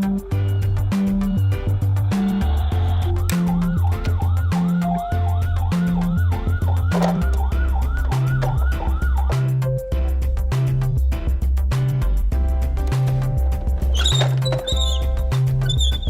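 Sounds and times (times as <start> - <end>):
siren yelping: 0.5 - 9.6.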